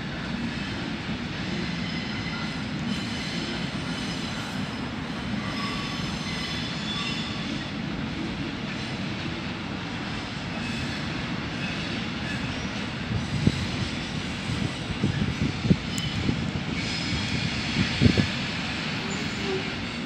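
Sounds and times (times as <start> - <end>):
freight wagons rumbling on rails: 0.0 - 20.0
faint wheel squeal: 5.4 - 7.5, 19.0 - 20.0.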